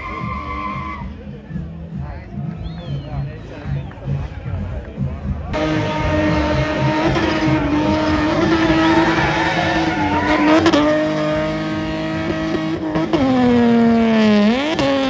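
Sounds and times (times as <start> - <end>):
car engine at high revs: 5.6 - 15.0.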